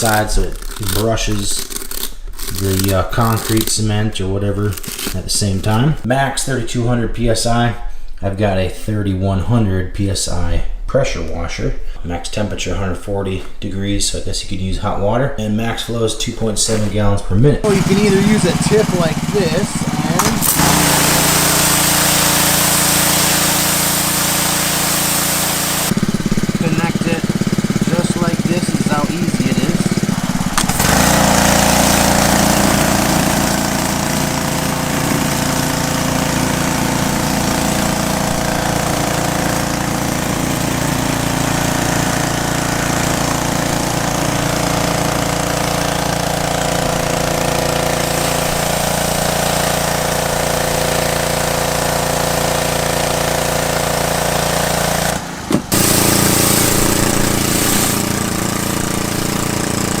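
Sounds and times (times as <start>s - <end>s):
high-pressure water spraying concrete: 17.6s - 60.0s
petrol engine running: 17.6s - 60.0s.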